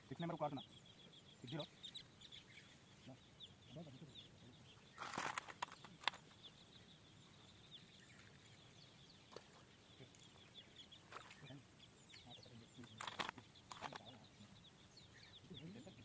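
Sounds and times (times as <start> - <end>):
birds chirping: 0.0 - 16.0
brief rustle: 5.0 - 6.4, 12.8 - 14.2
sharp clicks: 12.8 - 14.2.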